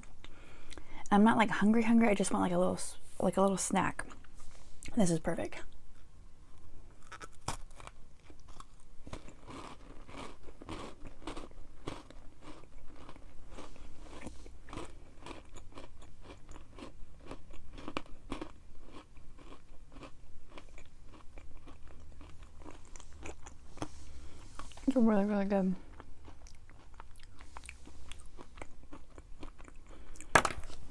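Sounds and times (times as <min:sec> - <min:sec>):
crunchy chewing of granola: 0:06.9 - 0:24.9, 0:25.8 - 0:30.9.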